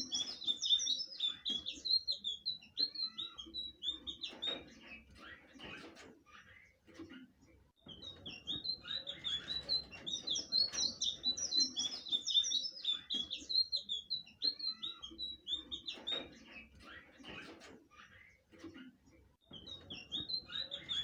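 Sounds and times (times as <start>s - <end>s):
bird chirping high notes: 8.0s - 16.1s.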